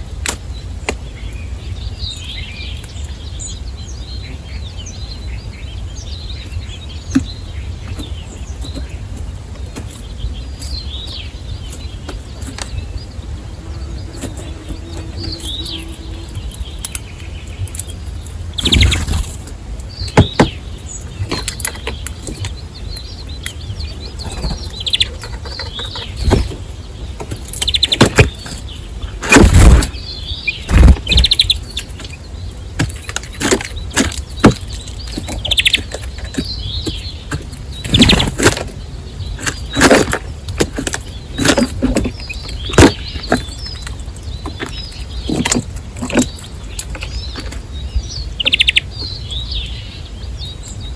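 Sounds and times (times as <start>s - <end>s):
bird chirps: 0.0s - 50.9s
bird wings fluttering: 30.6s - 31.6s.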